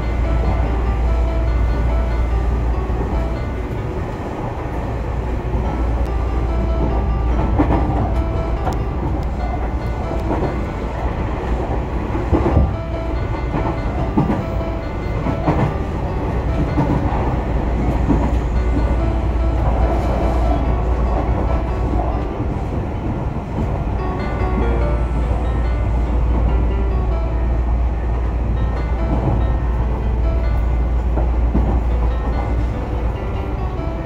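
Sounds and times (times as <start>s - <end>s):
train wheels rumbling: 0.0s - 34.0s
clacks over rail joints: 5.6s - 23.8s.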